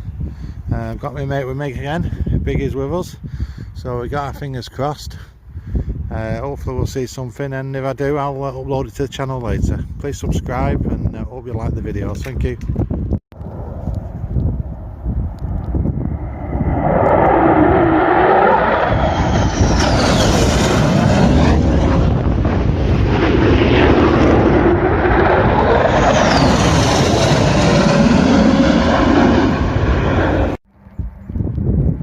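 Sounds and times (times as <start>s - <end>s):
jets roaring past: 13.4s - 30.6s.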